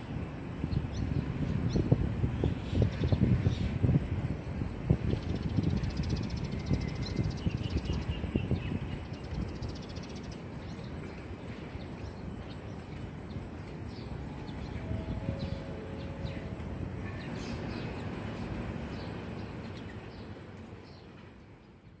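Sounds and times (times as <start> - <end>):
wind rumble on microphone: 0.0 - 19.9
birds chirping: 5.1 - 18.3
high-pitched hum: 12.9 - 17.7.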